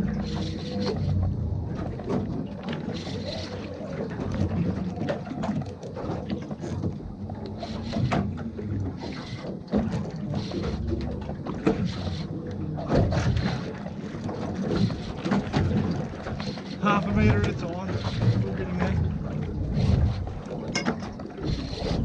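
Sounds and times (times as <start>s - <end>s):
water sloshing against hull: 0.0s - 22.0s
wind on microphone: 21.4s - 22.0s.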